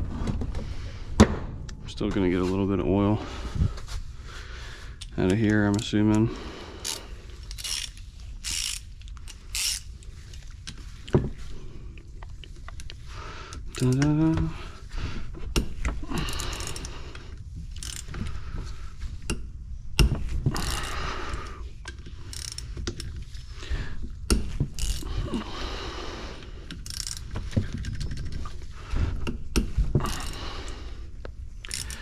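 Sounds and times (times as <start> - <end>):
hand tools clicking and scraping: 5.0 - 11.0, 12.2 - 14.5, 15.4 - 19.4, 20.0 - 23.5, 24.2 - 25.5, 26.4 - 30.8, 31.6 - 32.0.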